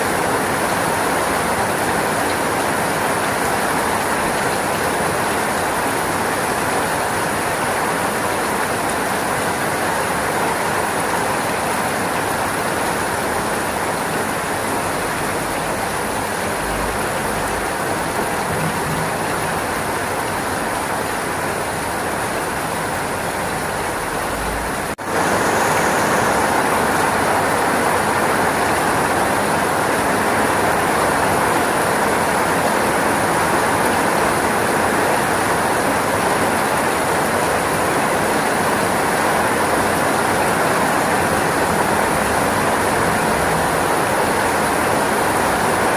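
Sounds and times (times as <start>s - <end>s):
steady rainfall: 0.0s - 45.9s.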